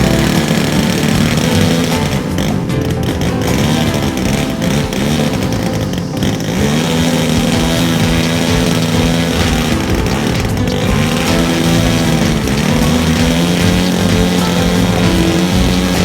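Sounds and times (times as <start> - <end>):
model plane engine in flight: 3.8 - 16.0.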